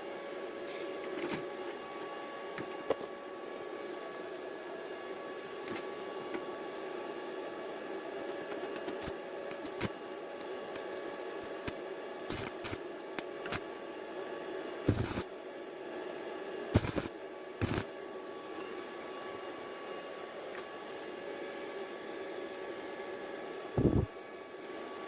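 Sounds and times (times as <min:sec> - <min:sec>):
steady hum: 0:16.8 - 0:18.0, 0:23.7 - 0:24.2.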